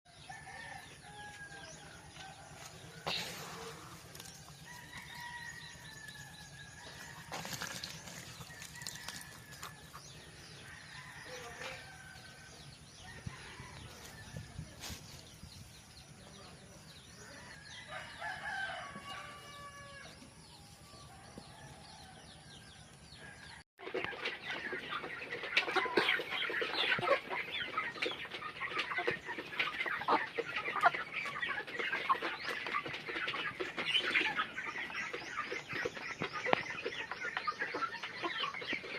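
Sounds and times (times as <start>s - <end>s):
chickens clucking: 0.2s - 21.7s, 22.4s - 38.9s
rooster crowing: 17.8s - 20.1s.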